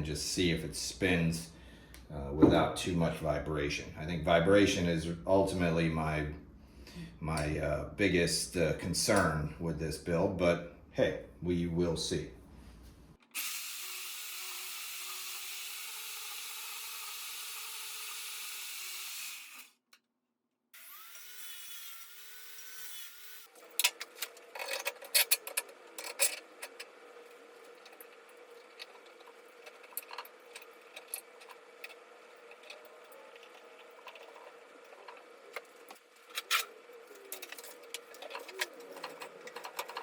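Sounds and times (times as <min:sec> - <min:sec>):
bandsaw cutting steel: 0:13.2 - 0:19.8, 0:20.8 - 0:39.8
machine whine: 0:23.3 - 0:40.0.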